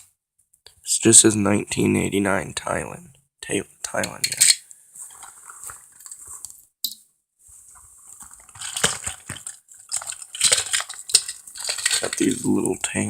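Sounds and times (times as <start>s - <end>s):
toy vehicles clicking and tapping: 8.4s - 12.8s.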